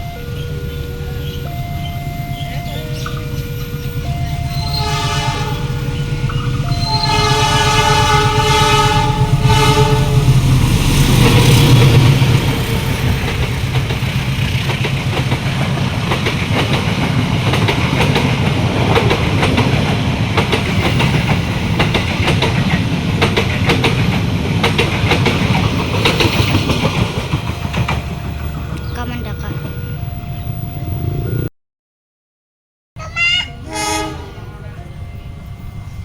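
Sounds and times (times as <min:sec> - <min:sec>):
train passing rumble: 0:00.0 - 0:31.5, 0:33.0 - 0:36.0
wheels clacking over rail joints: 0:00.3 - 0:29.4
train horn chord: 0:02.3 - 0:12.0, 0:33.1 - 0:36.0.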